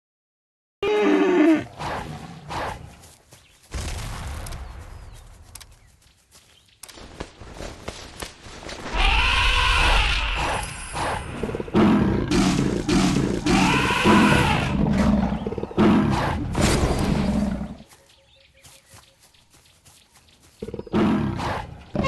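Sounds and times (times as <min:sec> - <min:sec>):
tiger roaring and growling: 0:09.0 - 0:17.8, 0:20.6 - 0:22.0.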